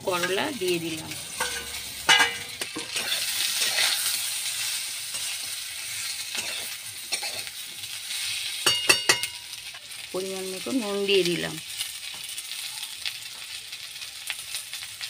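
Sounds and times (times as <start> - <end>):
metal spatula clanking: 0.0 - 4.4, 5.1 - 5.5, 6.2 - 7.5, 8.6 - 9.6
vegetables sizzling in oil: 0.0 - 15.0.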